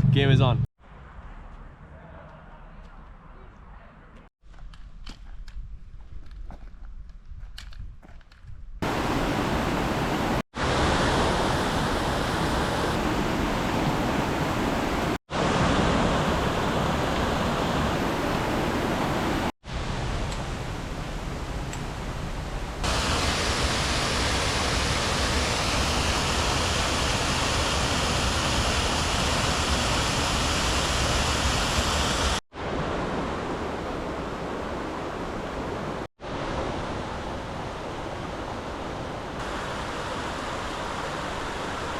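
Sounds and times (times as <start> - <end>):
waterfall roaring: 8.8 - 37.0, 39.0 - 41.9.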